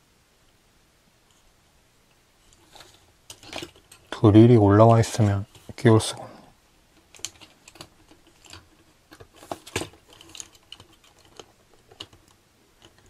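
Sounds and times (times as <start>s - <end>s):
plastic parts clicking together: 2.5s - 4.1s, 7.0s - 13.0s.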